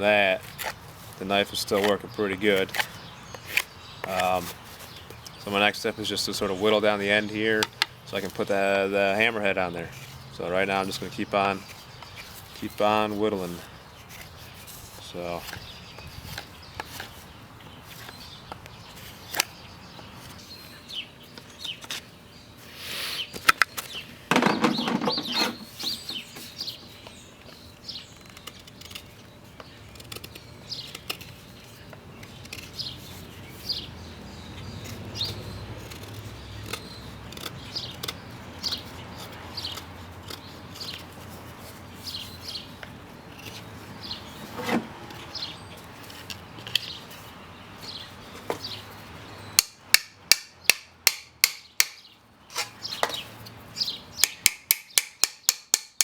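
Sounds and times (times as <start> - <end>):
small birds chirping: 0.0 - 56.0
loud scraping rustle: 21.7 - 26.6, 38.7 - 49.1
sharp knocks: 24.3 - 26.0.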